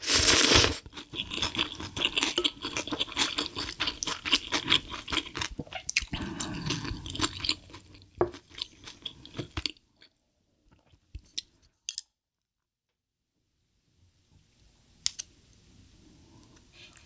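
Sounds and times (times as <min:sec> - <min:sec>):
close chewing crunching: 0:00.3 - 0:09.8.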